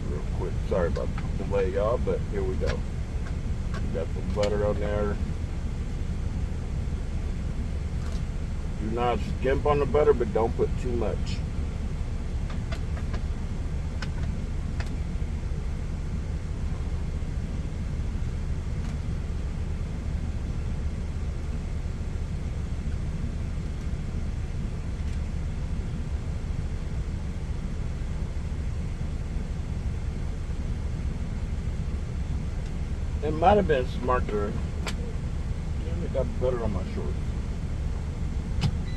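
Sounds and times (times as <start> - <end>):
truck engine idling: 0.0 - 38.9.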